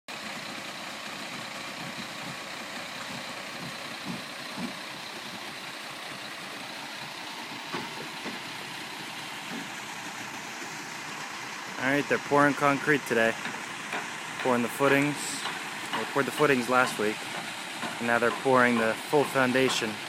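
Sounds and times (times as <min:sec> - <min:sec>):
cement mixer diesel engines running: 0:00.1 - 0:20.0
short knocks: 0:13.4 - 0:20.0.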